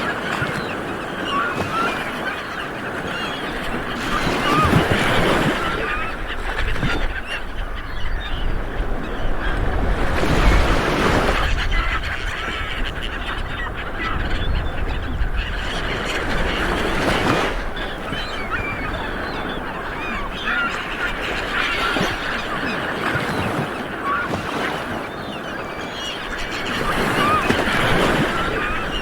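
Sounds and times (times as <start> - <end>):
waves washing onto beach: 0.0 - 7.6, 15.4 - 29.0
birds calling and chirping: 0.0 - 29.0.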